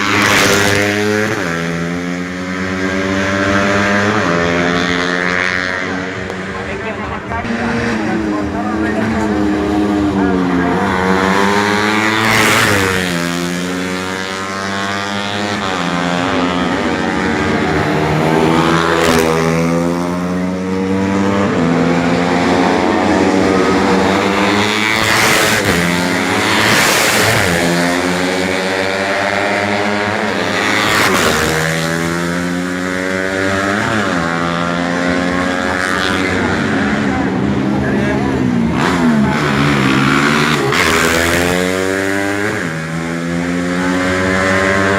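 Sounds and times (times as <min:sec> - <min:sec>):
motorcycles passing by: 0:00.0 - 0:44.9
racing motorcycles at full throttle: 0:00.0 - 0:44.9.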